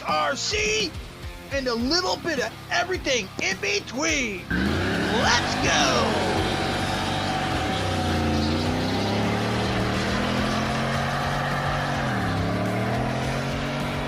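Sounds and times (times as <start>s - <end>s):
engine running: 4.4s - 14.0s.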